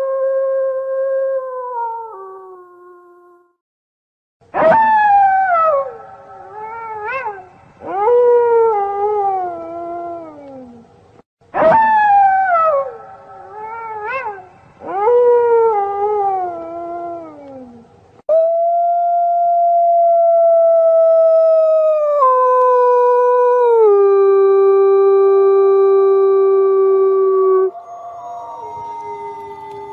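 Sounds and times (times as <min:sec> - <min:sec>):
wolves howling: 0:26.4 - 0:29.9.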